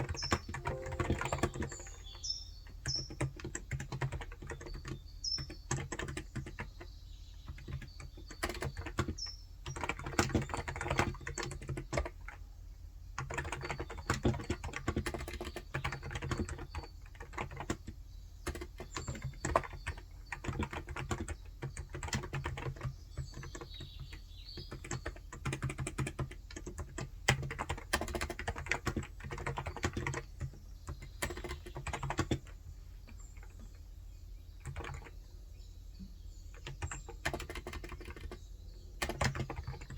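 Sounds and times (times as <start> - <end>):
keyboard typing clicks: 0.0 - 6.9, 18.5 - 32.5, 36.6 - 38.4, 39.0 - 39.9.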